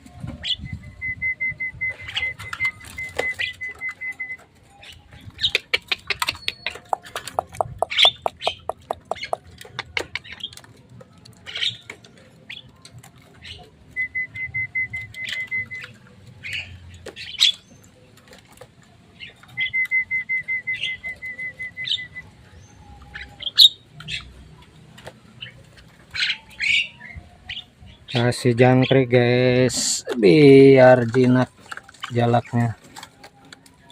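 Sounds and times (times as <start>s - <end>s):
birds chirping and squawking: 0.0s - 33.9s
bird rapid repeated notes: 5.4s - 10.5s.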